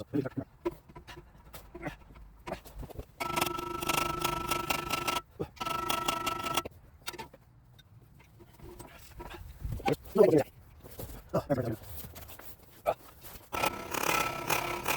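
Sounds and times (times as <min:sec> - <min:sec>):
small motor tool whining: 0:03.2 - 0:06.7, 0:13.5 - 0:14.9.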